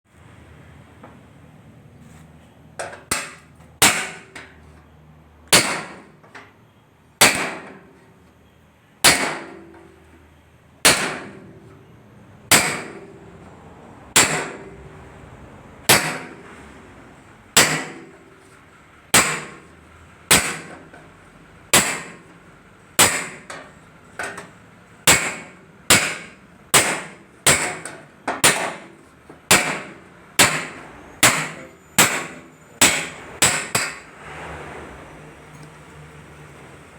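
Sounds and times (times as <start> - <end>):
hammer striking sheet metal: 2.8 - 4.6, 5.5 - 6.2, 7.2 - 7.9, 9.0 - 9.8, 10.8 - 11.6, 12.5 - 13.1, 14.1 - 14.8, 15.9 - 16.6, 17.6 - 18.2, 19.1 - 19.7, 20.3 - 20.9, 21.7 - 22.3, 23.0 - 24.5, 25.1 - 34.2.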